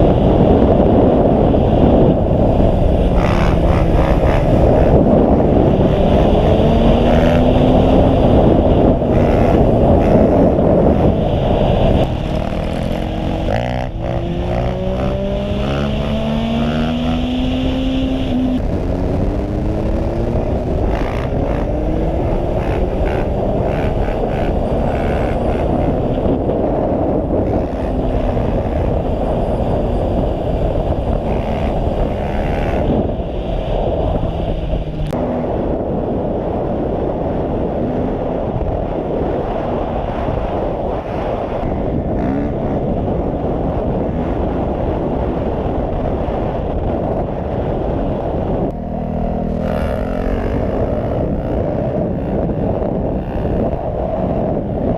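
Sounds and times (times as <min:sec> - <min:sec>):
motorcycle engine revving: 0:00.0 - 0:54.9
wind rush on microphone: 0:00.0 - 0:54.9.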